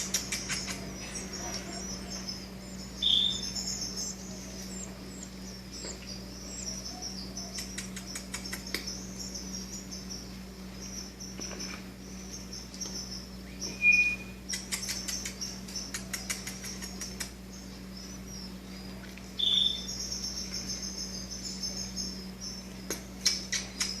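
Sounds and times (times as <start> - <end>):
nestlings high chirring: 0.0 - 24.0
clear bird call notes: 12.5 - 24.0.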